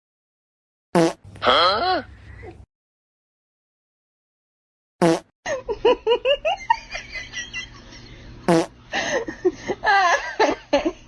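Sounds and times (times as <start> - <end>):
person laughing: 5.5 - 8.2, 9.0 - 11.0.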